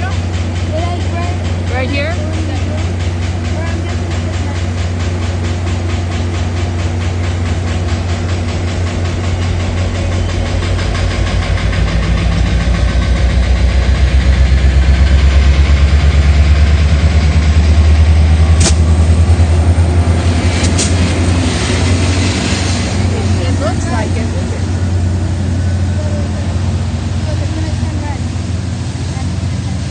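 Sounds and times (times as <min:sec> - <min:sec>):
diesel locomotive engine throbbing: 0:00.0 - 0:29.9
sharp click: 0:18.6 - 0:18.9, 0:20.6 - 0:21.0.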